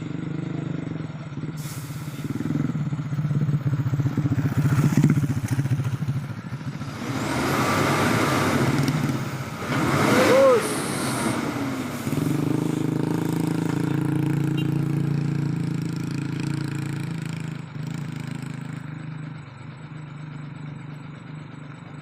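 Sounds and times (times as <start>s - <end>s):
truck diesel engine running: 0.0s - 22.0s.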